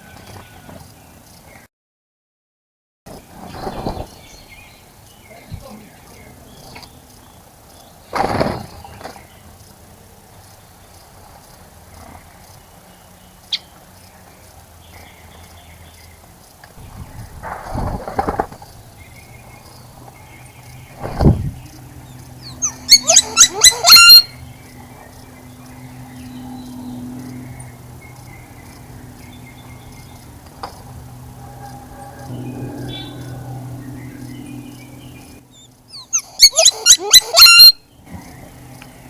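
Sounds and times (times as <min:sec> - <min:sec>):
distant bird chirps: 0:03.5 - 0:39.0
rapid chattering bird call: 0:12.0 - 0:30.4, 0:34.2 - 0:39.0
low steady hum: 0:18.5 - 0:36.5.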